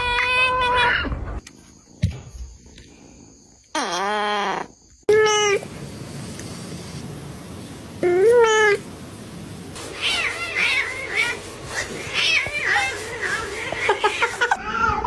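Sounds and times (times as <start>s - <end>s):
cat meowing: 8.0s - 8.8s.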